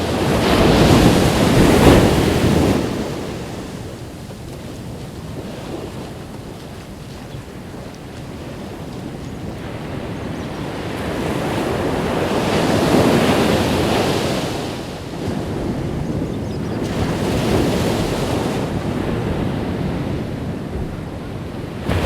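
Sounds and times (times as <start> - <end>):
ocean waves breaking on beach: 0.0 - 22.0
wind on microphone: 0.0 - 22.0.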